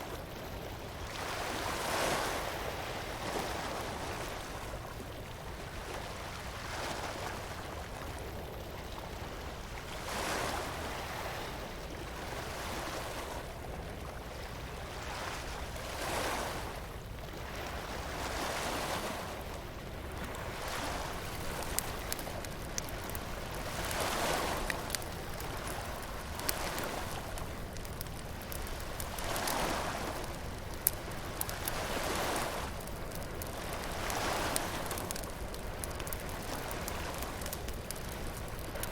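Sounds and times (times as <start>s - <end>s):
bonfire crackling and popping: 19.4s - 38.9s
surf washing onto beach: 20.2s - 38.9s.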